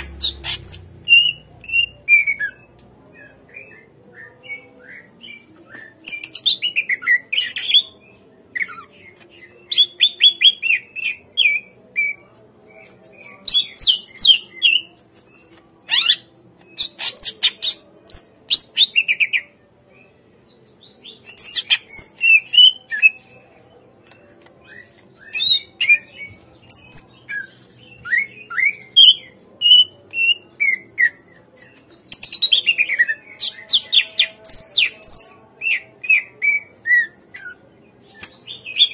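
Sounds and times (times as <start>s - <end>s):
bird whistling and chattering: 0.2s - 2.6s.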